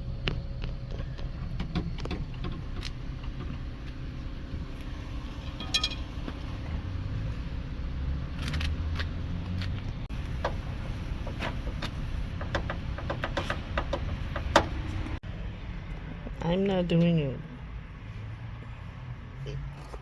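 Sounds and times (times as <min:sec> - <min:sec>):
minivan cabin rumble: 0:00.0 - 0:15.3.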